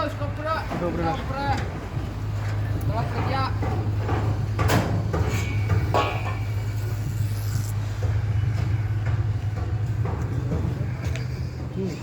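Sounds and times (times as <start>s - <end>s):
motor engine humming: 0.0s - 12.0s
sharp metallic knocks: 3.6s - 6.7s.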